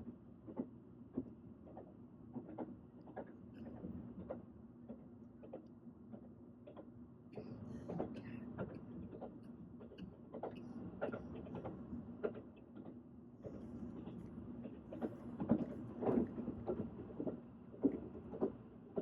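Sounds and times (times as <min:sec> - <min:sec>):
train clicks and rattles: 0:00.1 - 0:19.0
train rumbling: 0:10.2 - 0:19.0.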